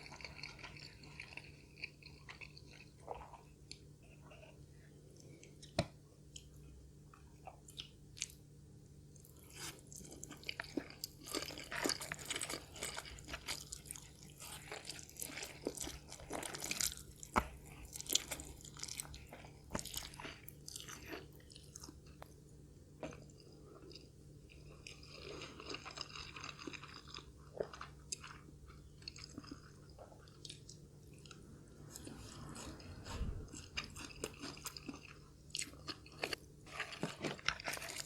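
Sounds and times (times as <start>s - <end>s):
crunching and chewing crisp food: 0.0s - 38.0s.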